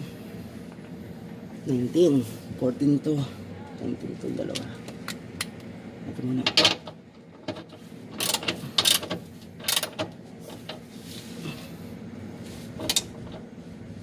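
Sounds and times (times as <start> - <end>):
ratchet wrench clicking: 8.2 - 10.1.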